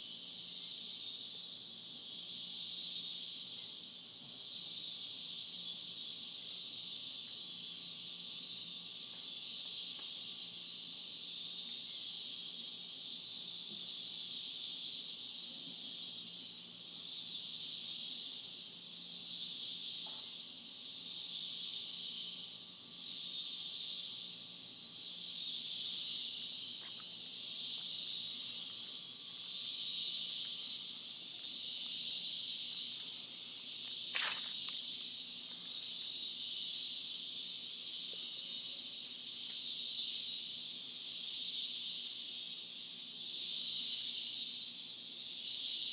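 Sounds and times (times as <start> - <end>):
high-pitched insect chorus: 0.0 - 45.9.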